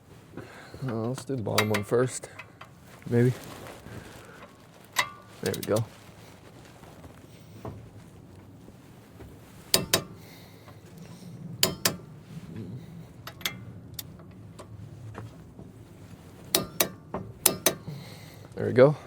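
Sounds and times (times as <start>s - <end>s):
wrench clicking: 1.6s - 2.7s, 9.7s - 10.2s, 11.6s - 12.0s, 16.5s - 17.9s.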